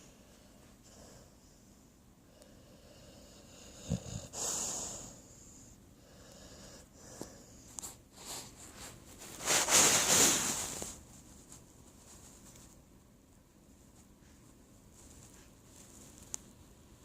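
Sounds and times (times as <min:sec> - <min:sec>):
dog snoring: 0:02.3 - 0:07.7
dog snorting: 0:02.8 - 0:05.2.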